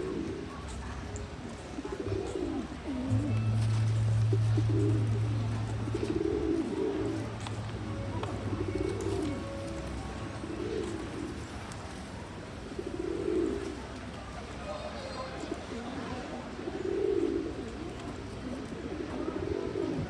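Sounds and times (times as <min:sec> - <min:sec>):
pigeons cooing: 0:00.0 - 0:14.2, 0:16.5 - 0:20.0
low steady hum: 0:02.8 - 0:13.0.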